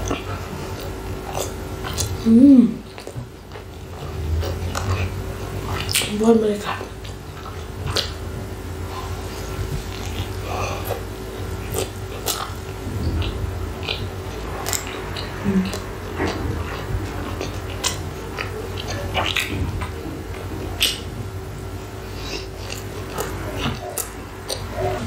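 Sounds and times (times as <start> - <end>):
close chewing with smacking: 0.0 - 25.0
steady low hum: 0.0 - 25.0.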